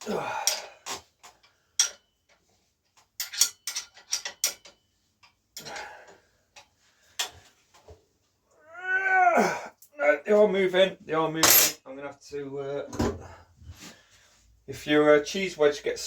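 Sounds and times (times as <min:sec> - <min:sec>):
metallic clicks of hand tools: 0:03.0 - 0:05.8.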